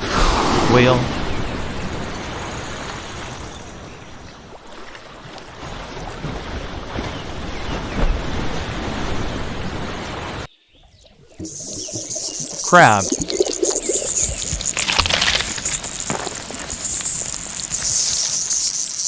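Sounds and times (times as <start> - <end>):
ocean waves rushing: 0.0 - 10.5.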